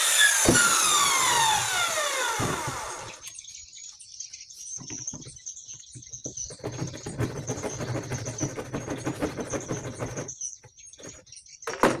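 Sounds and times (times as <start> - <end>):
saw cutting plywood: 0.0 - 3.3, 6.6 - 10.3.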